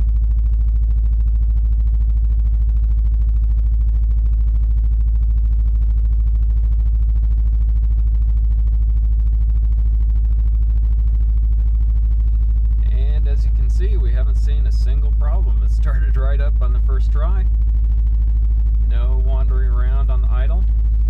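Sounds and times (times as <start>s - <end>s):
car engine idling: 11.9s - 18.0s, 18.8s - 21.0s.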